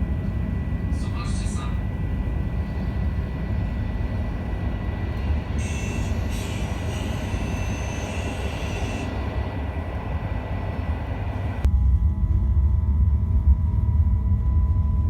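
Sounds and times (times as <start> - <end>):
train wheels rumbling: 0.0 - 11.7
high squeal: 5.6 - 9.2.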